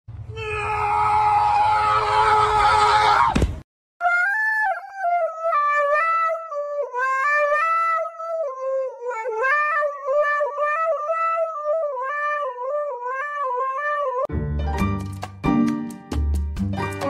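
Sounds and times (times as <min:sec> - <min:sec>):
dog howling into a microphone: 0:04.0 - 0:14.3
upbeat music: 0:14.3 - 0:17.0.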